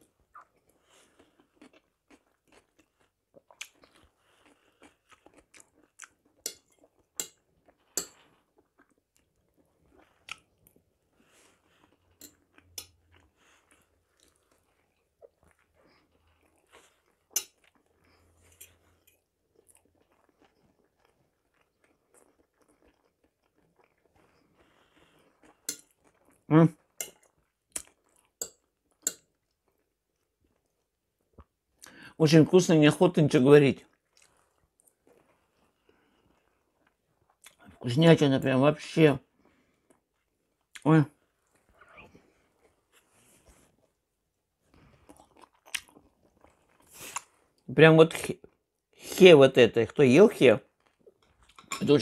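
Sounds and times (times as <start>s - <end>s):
wet chewing: 0.2s - 31.9s, 44.7s - 47.6s.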